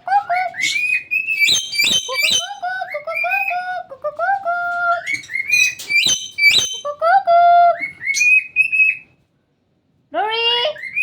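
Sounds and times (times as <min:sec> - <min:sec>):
parrots whistling and chirping: 0:00.2 - 0:03.8, 0:04.7 - 0:07.0, 0:07.7 - 0:09.2, 0:10.7 - 0:11.0.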